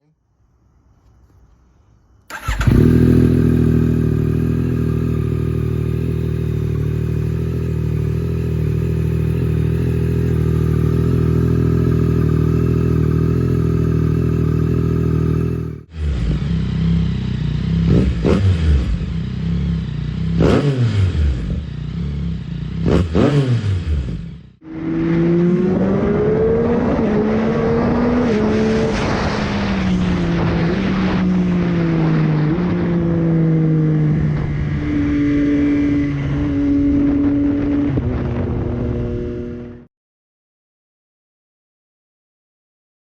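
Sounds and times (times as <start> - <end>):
motorcycle engine idling: 2.3 - 20.5
motorcycle engine revving: 2.3 - 39.9.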